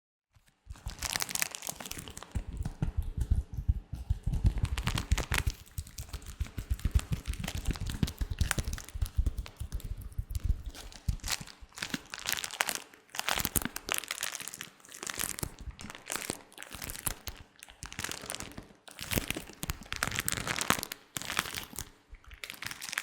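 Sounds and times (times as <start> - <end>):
latex gloves crinkling: 0.4 - 23.0.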